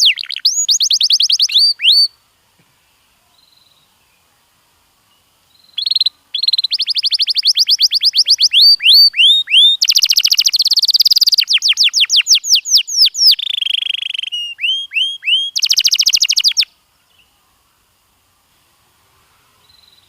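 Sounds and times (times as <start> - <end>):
canary singing: 0.0 - 2.2, 5.5 - 16.7.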